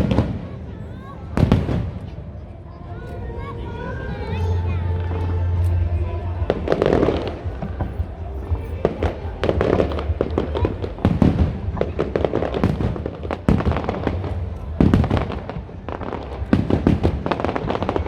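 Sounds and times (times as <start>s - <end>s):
fireworks bangs and crackles: 0.0s - 2.4s, 6.5s - 18.0s.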